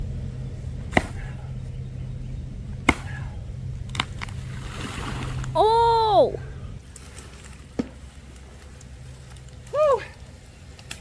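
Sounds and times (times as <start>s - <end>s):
steady low hum: 0.0s - 11.0s
axe striking tree trunk: 0.9s - 1.3s, 2.8s - 3.2s.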